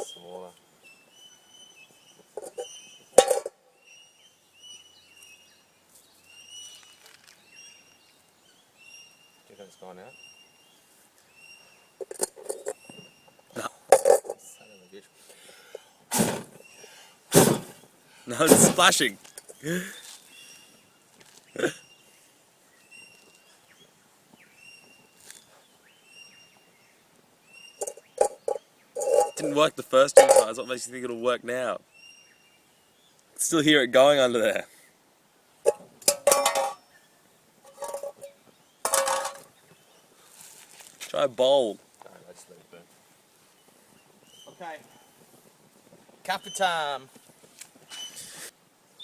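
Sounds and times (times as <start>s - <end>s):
birds whistling calls: 0.0s - 13.6s, 27.5s - 29.7s, 43.9s - 45.2s, 46.3s - 46.9s, 47.9s - 49.0s
faint whistled bird calls: 47.9s - 49.0s.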